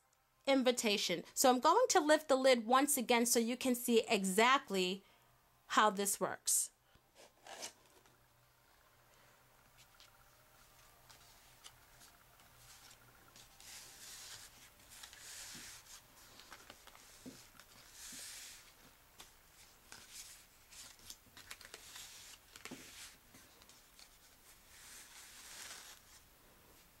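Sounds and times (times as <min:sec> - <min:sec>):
paper rustling: 0:07.2 - 0:08.2, 0:09.7 - 0:26.2.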